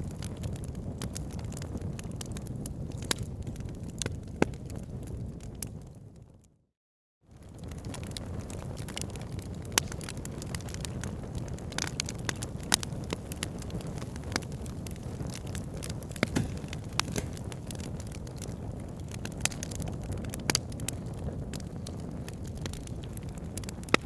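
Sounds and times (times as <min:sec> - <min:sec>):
fire crackles and pops: 0:00.0 - 0:06.4, 0:07.3 - 0:24.0
low rumble of fire: 0:00.0 - 0:06.5, 0:07.3 - 0:24.0
sharp snaps of fire: 0:07.8 - 0:21.0.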